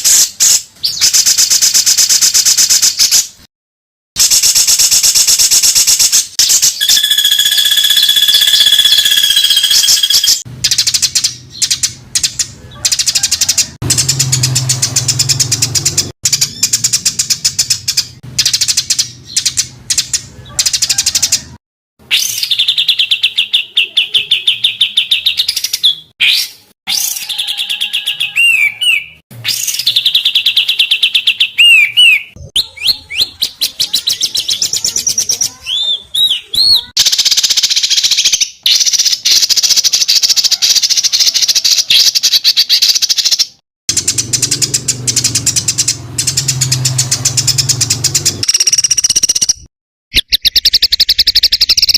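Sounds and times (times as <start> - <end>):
songbird trills and whistled notes: 6.4 - 13.7, 22.2 - 43.4, 44.0 - 51.9.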